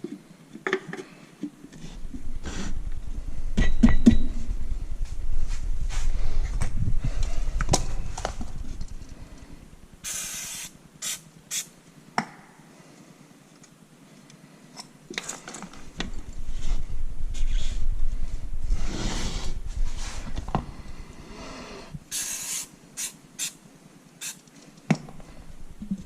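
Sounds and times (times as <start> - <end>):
low rumble: 2.0 - 10.0, 15.8 - 22.0
short hiss: 10.0 - 11.7, 22.1 - 23.6, 24.2 - 24.4.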